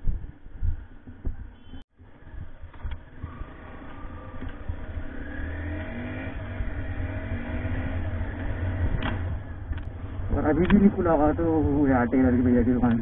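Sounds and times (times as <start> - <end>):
motorcycle engine accelerating: 2.1 - 12.4.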